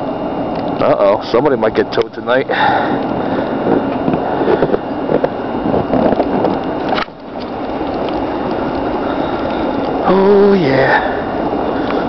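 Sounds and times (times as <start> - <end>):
wind gusting against microphone: 2.9 - 10.1.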